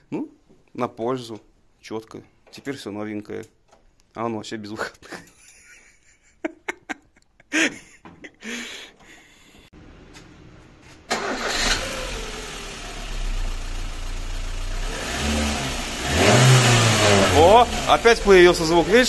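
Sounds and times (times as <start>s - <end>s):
car engine starting and running: 9.8s - 19.0s.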